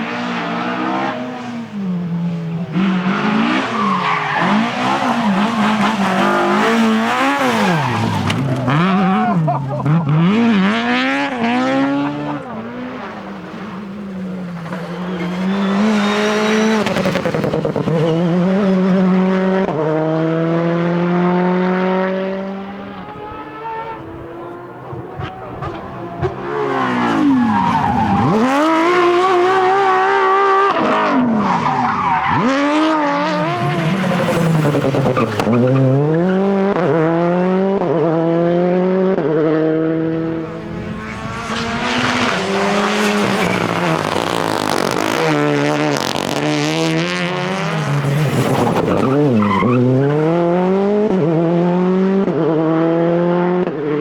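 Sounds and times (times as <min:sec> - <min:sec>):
rally car engines at full throttle: 0:00.0 - 0:54.0.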